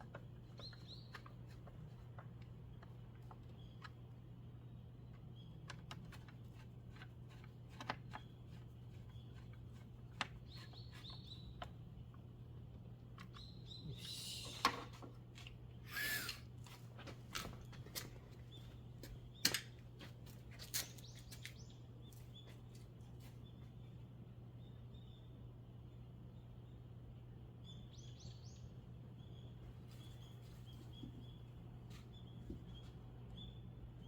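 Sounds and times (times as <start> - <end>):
faint high bird chirps: 13.3 - 14.7.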